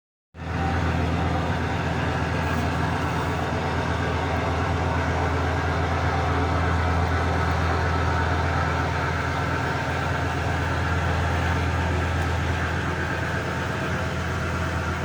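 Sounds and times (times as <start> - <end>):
boat engine droning: 0.4 - 15.0.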